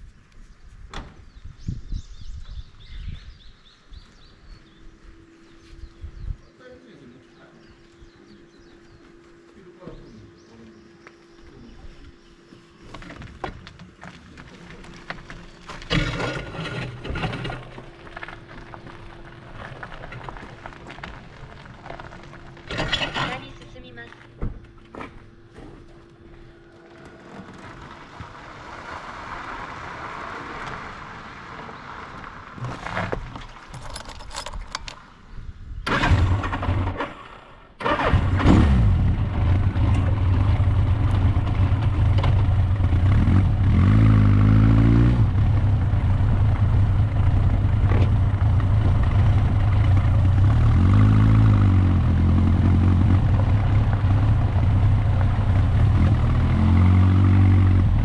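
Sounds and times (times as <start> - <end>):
motorcycle engine running: 7.3 - 27.2, 37.9 - 58.0
clicks and rattles: 33.3 - 35.0.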